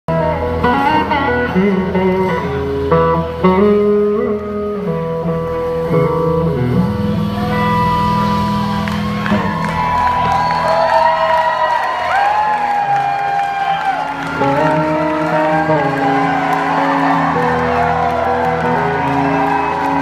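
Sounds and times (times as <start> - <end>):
electric guitar long sliding notes: 0.1 - 20.0
low band accompaniment: 0.1 - 20.0.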